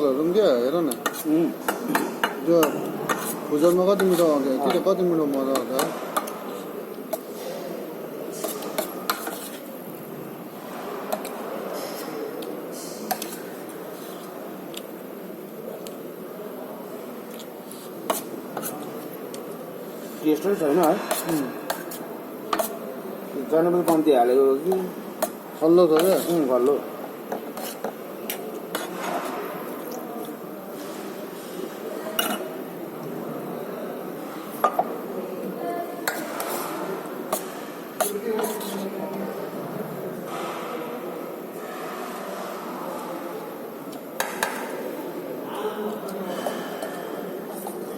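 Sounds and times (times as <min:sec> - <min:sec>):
background noise: 0:00.0 - 0:47.9
cutlery clinking against a plate: 0:00.9 - 0:06.4, 0:08.3 - 0:09.6, 0:11.1 - 0:13.5, 0:20.7 - 0:22.8, 0:24.7 - 0:26.5, 0:32.2 - 0:32.5, 0:36.0 - 0:36.7.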